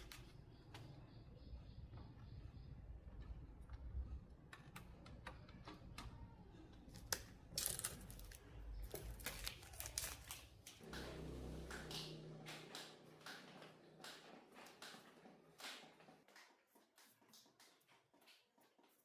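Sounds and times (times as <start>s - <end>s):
low hum: 10.8s - 14.4s.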